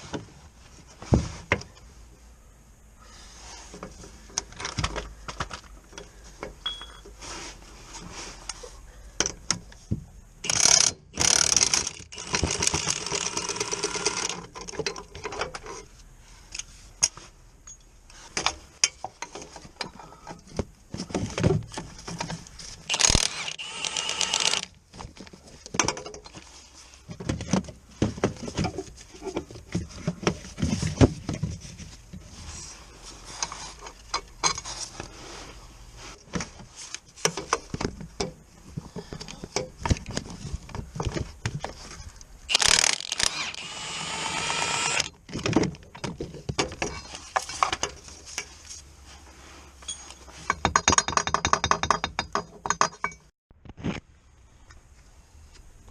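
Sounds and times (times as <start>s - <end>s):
ratchet clicks: 10.4s - 14.4s, 22.9s - 24.7s, 42.5s - 43.8s
metal clinks and knocks: 49.8s - 53.3s.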